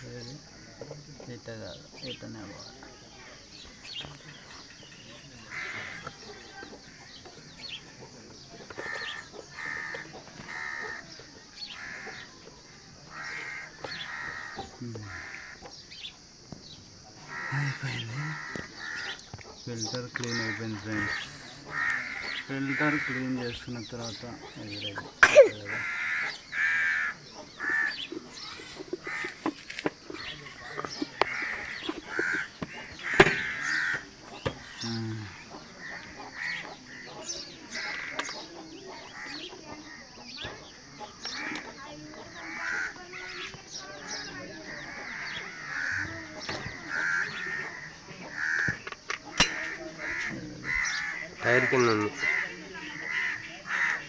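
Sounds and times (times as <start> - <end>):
crow cawing: 5.4 - 7.3, 8.7 - 15.7, 17.2 - 19.3, 20.2 - 38.5, 41.2 - 54.0.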